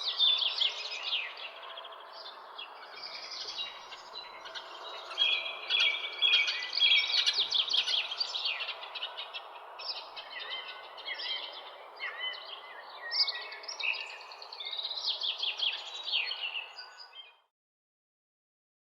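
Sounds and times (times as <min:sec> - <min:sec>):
songbirds chirping and trilling: 0:00.0 - 0:17.5.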